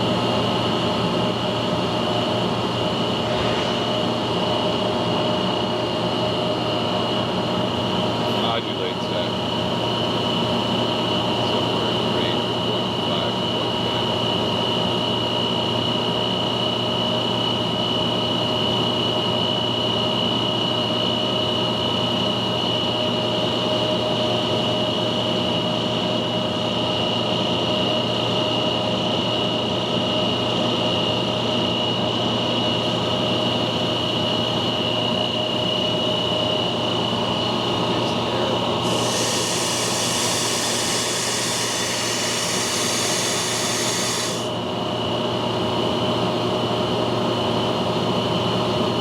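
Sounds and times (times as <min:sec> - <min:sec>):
air compressor running: 0:00.0 - 0:05.0, 0:35.8 - 0:46.7.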